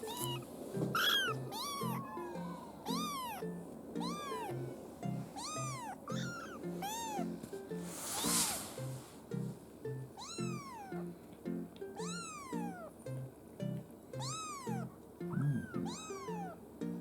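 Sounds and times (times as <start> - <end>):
kitten meowing: 0.0 - 4.6, 5.4 - 7.4, 10.2 - 11.1, 12.0 - 12.9, 14.2 - 16.6.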